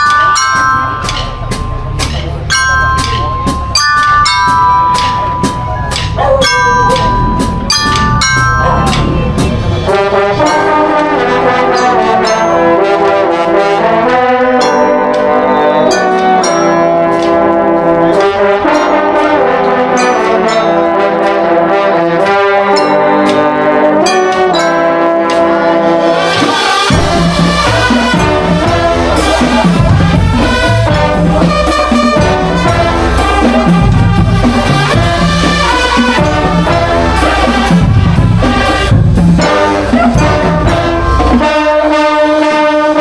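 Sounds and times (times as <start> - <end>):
heavy drum beats: 0.0 - 21.5, 22.1 - 43.0
brass melody: 0.0 - 43.0
light percussion ticks: 1.0 - 9.6.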